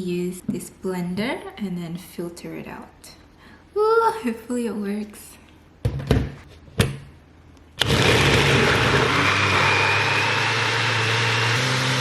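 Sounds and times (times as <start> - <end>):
blender chopping: 7.8 - 12.0.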